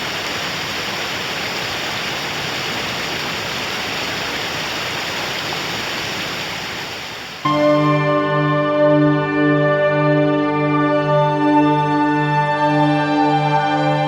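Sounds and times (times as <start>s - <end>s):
water rushing: 0.0s - 7.5s
music with sustained notes: 7.5s - 14.0s.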